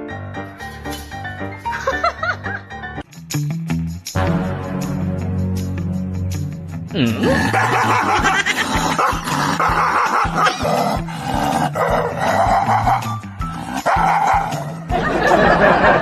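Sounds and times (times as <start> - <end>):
background music with bass line: 0.0 - 16.0
dog barking loudly: 7.4 - 14.8.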